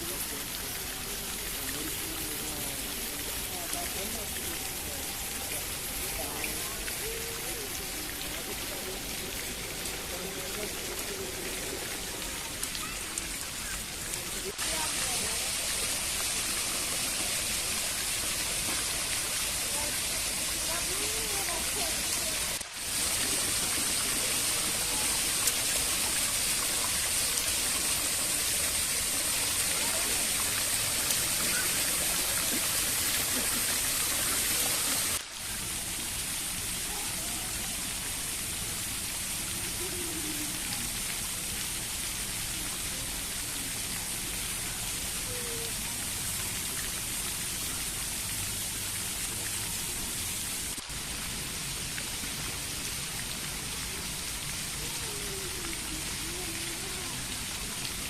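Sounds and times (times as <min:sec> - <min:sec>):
running water rushing: 0:00.0 - 0:58.0.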